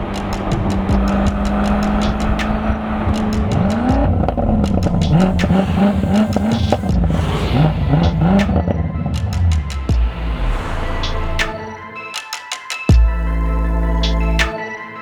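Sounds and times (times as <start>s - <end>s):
car engine rev blips: 0.0s - 11.4s.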